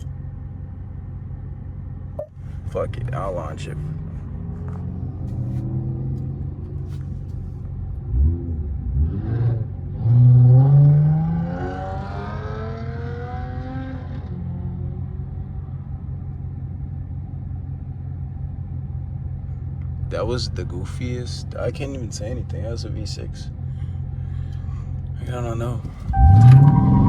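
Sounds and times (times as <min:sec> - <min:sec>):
engine cruising drone: 0:00.0 - 0:27.0
car engine accelerating hard: 0:02.6 - 0:16.1, 0:25.0 - 0:27.0.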